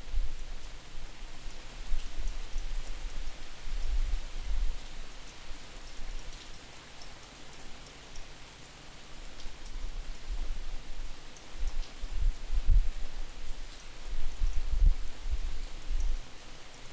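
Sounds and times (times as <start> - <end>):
wind rumble on microphone: 0.0 - 5.0, 9.8 - 16.4
rain falling: 0.0 - 16.9.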